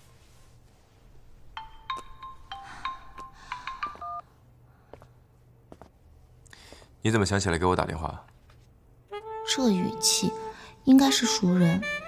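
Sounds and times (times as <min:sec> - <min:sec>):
marimba phone ringtone: 0:03.6 - 0:04.2.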